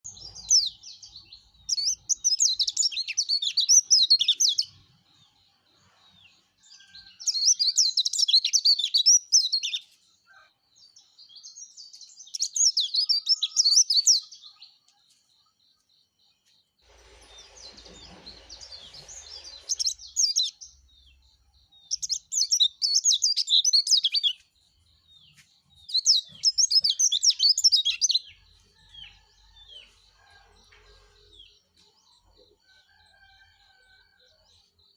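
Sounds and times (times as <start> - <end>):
bird twittering song: 0.0 - 34.9
brief hiss: 16.8 - 20.5.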